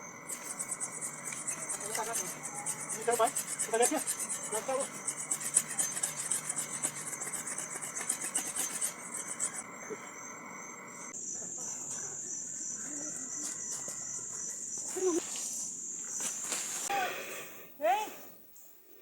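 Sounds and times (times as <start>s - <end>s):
crickets chirping: 0.0s - 19.0s
cane pole being scraped: 0.3s - 9.6s.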